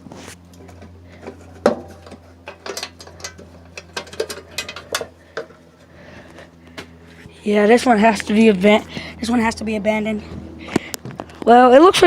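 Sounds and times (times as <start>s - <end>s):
steady low hum: 0.0s - 12.0s
clicks and clanks of handling: 0.5s - 5.6s.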